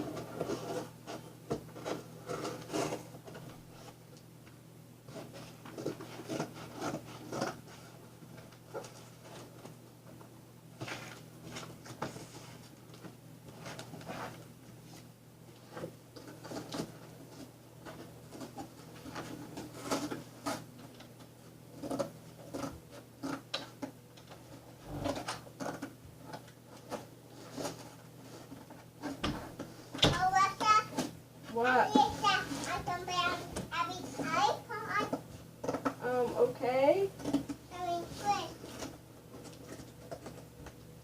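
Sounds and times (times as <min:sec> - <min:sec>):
window fan hum: 0:00.0 - 0:41.0
cardboard rustling: 0:26.6 - 0:35.8.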